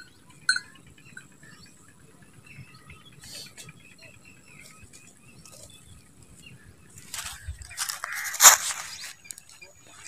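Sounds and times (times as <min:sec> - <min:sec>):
outdoor background noise: 0:00.0 - 0:10.0
small birds chirping: 0:00.0 - 0:10.0
brief rustle: 0:07.1 - 0:09.4.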